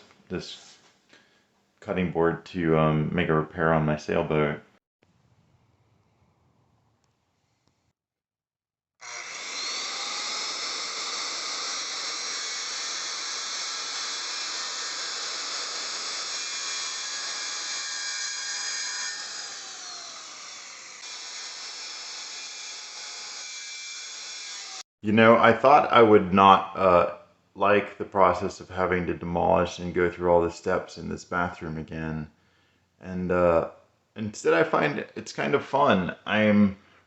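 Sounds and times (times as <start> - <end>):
power saw cutting plastic: 9.0 - 24.8.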